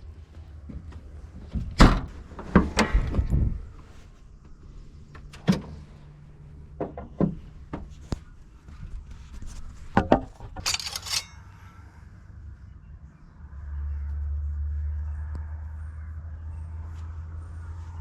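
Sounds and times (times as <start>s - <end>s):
short rattling jangle: 10.4s - 11.6s.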